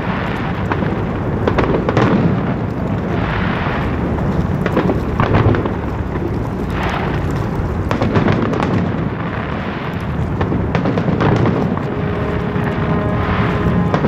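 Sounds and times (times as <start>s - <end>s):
fireworks crackling: 0.0s - 14.0s
fireworks shells bursting: 0.0s - 14.0s
low rumble of booms: 0.0s - 14.0s.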